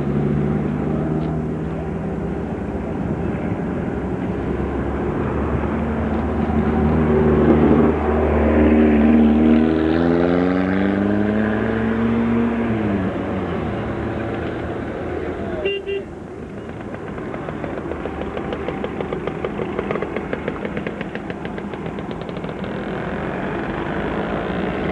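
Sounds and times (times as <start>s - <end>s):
race car engine accelerating: 0.0s - 15.6s.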